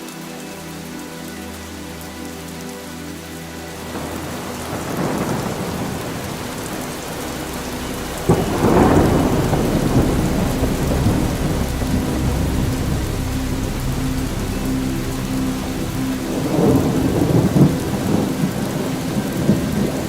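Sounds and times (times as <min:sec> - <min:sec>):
steady rain: 0:00.0 - 0:20.0
thunder rumbling: 0:03.8 - 0:20.0
thunderclap: 0:03.9 - 0:19.9.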